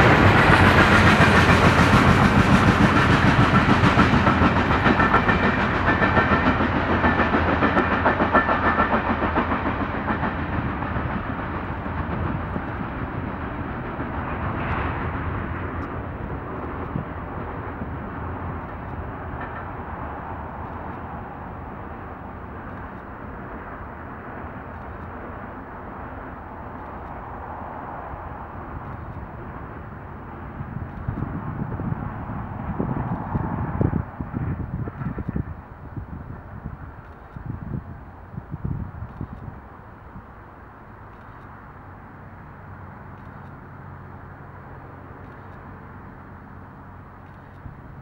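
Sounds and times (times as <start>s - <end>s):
train wheels clattering over rails: 0.0s - 39.5s.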